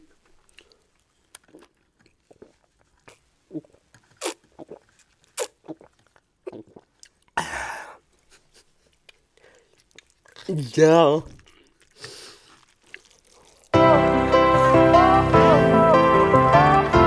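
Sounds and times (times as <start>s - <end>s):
chewing noodles: 0.0s - 7.4s, 8.4s - 13.8s.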